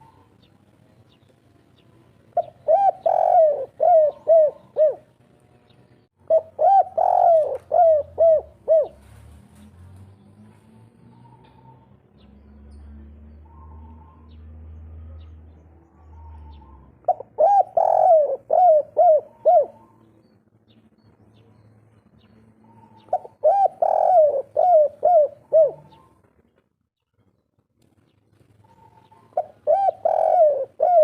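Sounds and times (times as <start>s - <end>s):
dove cooing: 2.3s - 5.1s, 6.2s - 9.2s, 15.9s - 20.1s, 22.6s - 26.3s, 28.6s - 31.0s.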